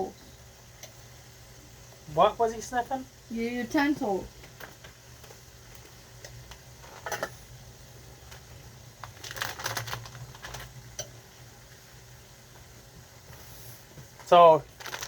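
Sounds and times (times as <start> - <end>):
low steady hum: 0.0 - 15.0
cooking utensils clicking and rattling: 4.4 - 7.4.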